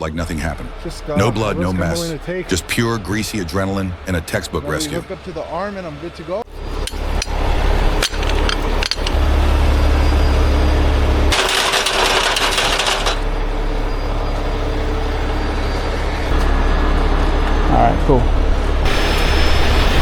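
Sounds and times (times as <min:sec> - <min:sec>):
diesel machinery rumbling: 0:00.0 - 0:20.0
sharp metallic clinks: 0:06.8 - 0:09.4
loud hiss: 0:18.9 - 0:20.0.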